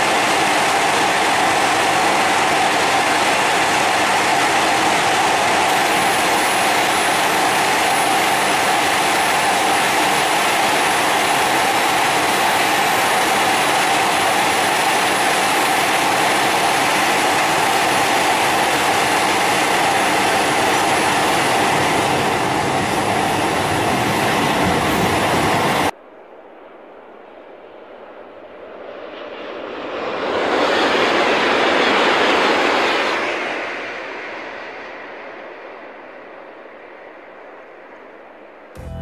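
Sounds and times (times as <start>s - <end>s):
high-speed train rushing past: 0.0s - 39.0s.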